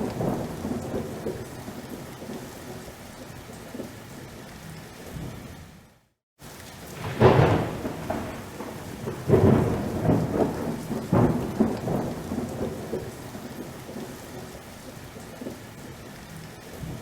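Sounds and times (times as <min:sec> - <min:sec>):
thunder rumbling: 0:00.0 - 0:03.0, 0:06.8 - 0:15.6
steady rain: 0:00.0 - 0:17.0.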